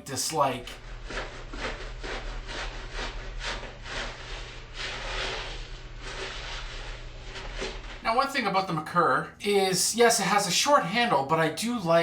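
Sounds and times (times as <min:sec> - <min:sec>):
razor scraping stubble: 0:00.7 - 0:08.1.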